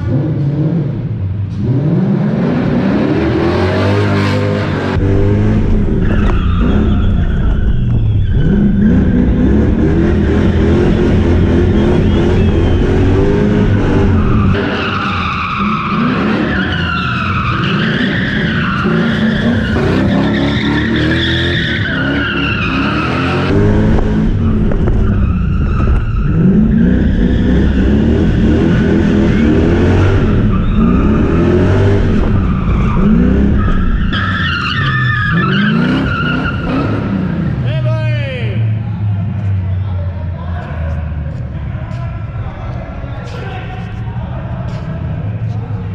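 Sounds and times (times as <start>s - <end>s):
car engine revving: 0.0s - 37.9s
tyres squealing: 5.8s - 23.5s, 28.7s - 37.5s.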